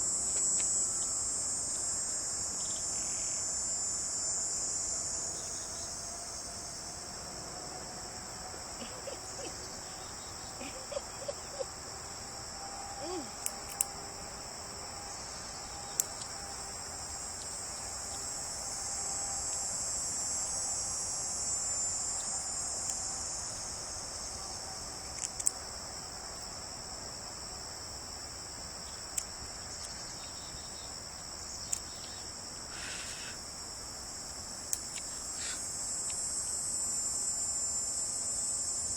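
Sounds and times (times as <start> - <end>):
crickets chirping: 0.0 - 38.9
sharp clicks: 13.4 - 14.0.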